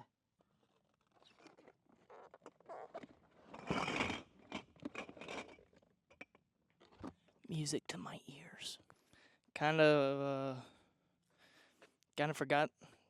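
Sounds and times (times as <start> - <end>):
objects scraping and rustling: 0.8 - 5.8.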